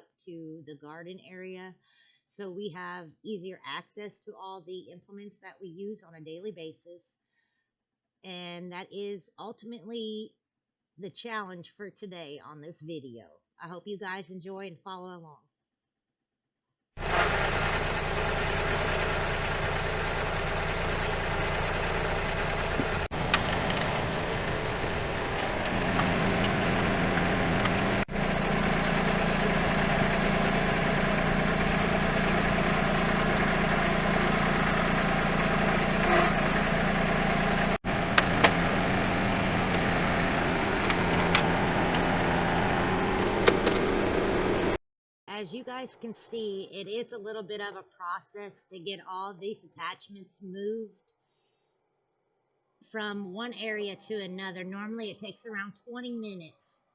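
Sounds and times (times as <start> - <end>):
tractor diesel engine running: 17.0 - 44.8.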